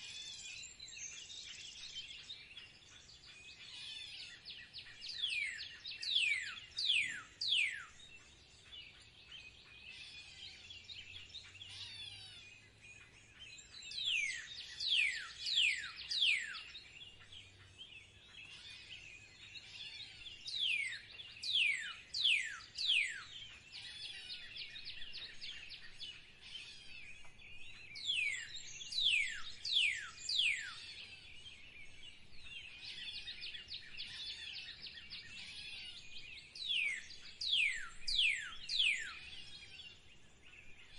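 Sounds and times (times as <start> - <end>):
birds chattering and trilling: 0.0 - 40.9.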